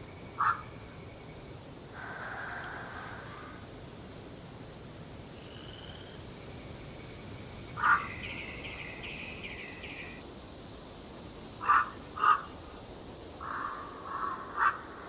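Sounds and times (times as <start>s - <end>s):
faint background hiss: 0.0s - 15.0s
songbird warbling trill: 5.4s - 10.2s
loud caw: 11.6s - 12.5s, 13.4s - 15.0s.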